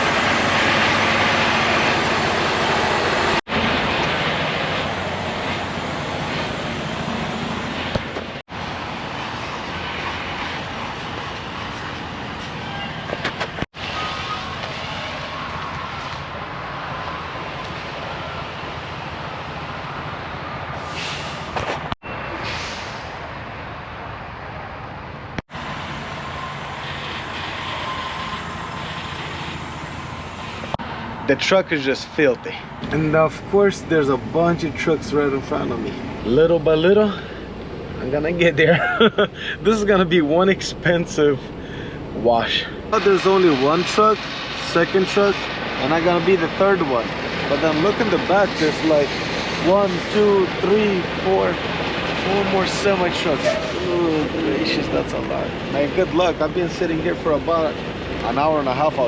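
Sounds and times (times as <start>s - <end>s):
truck engine running: 0.0s - 12.5s, 33.0s - 59.0s.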